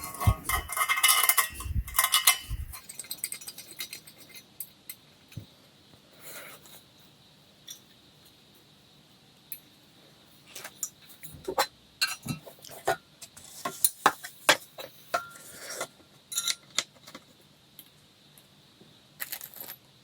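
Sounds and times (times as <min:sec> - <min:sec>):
metal hardware clinking: 0:00.0 - 0:04.4, 0:16.3 - 0:16.8.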